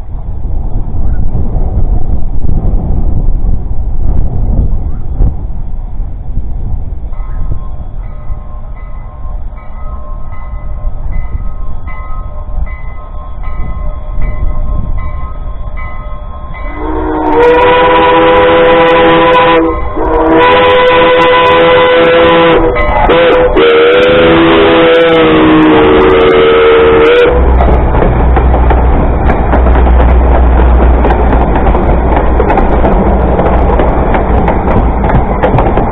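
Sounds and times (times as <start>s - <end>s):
faint bell ringing: 7.2s - 16.8s
steam locomotive chime whistle: 7.2s - 27.6s.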